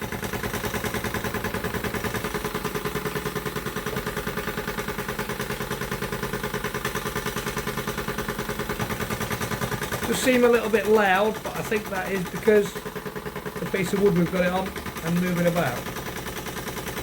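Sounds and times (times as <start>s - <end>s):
model steam engine running: 0.0s - 17.0s
steady hum: 10.0s - 16.0s.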